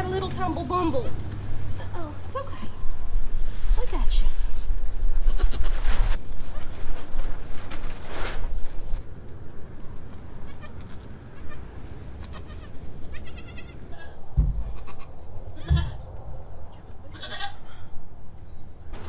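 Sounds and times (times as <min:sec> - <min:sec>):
goats bleating: 0:10.4 - 0:16.1, 0:17.1 - 0:17.7
dull low thumps: 0:14.3 - 0:16.3.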